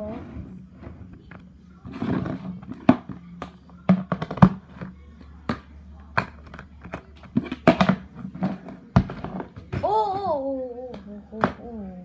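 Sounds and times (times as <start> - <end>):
plastic containers clicking and tapping: 1.2 - 10.3.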